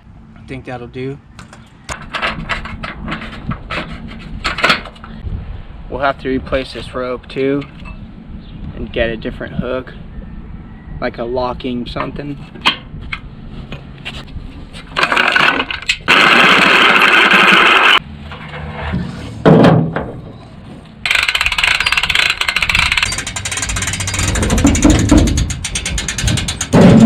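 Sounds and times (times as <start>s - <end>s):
power tool running in bursts: 15.1s - 18.0s.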